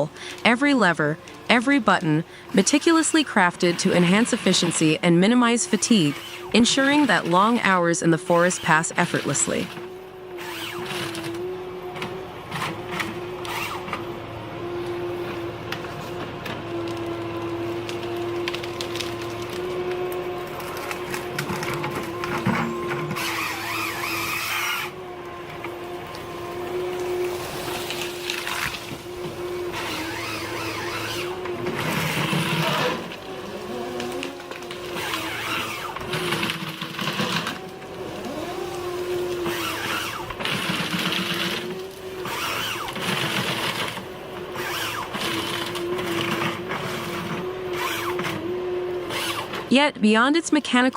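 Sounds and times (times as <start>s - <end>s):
harvester machine whine: 0.0s - 50.3s
short squealing creaks: 5.9s - 7.2s, 20.6s - 25.0s, 26.6s - 48.4s.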